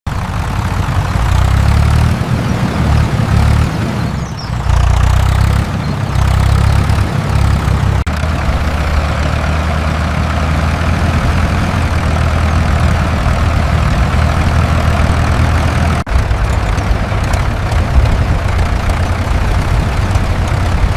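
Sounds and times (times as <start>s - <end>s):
tractor engine rumbling: 0.0s - 20.9s.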